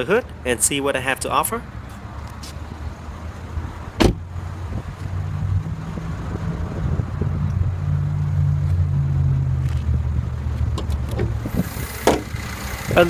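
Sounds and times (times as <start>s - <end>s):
car engine idling: 9.6s - 13.0s.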